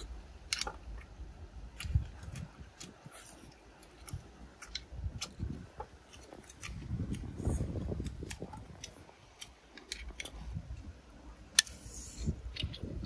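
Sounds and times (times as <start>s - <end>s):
person chewing with clicks: 0.0s - 10.4s.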